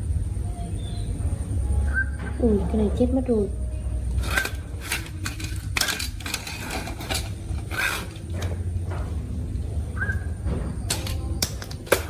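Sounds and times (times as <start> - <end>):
low hum: 0.0 - 12.0
plastic parts clicking and rattling: 4.2 - 8.6, 10.9 - 12.0.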